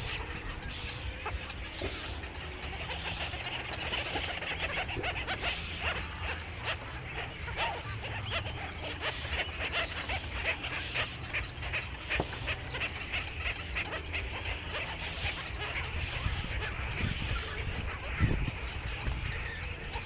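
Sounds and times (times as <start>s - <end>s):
birds chirping: 0.0s - 20.0s
steady low hum: 0.0s - 20.0s.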